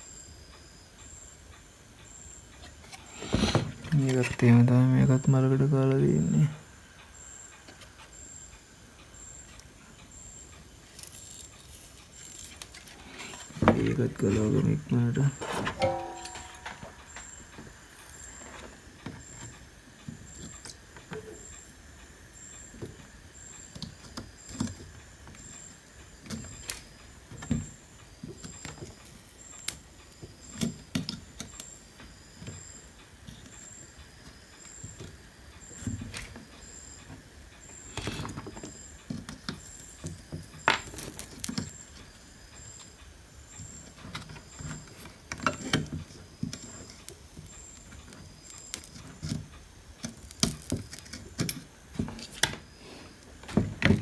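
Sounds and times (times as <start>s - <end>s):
hand tools clicking and tapping: 15.3s - 17.4s, 44.0s - 52.6s.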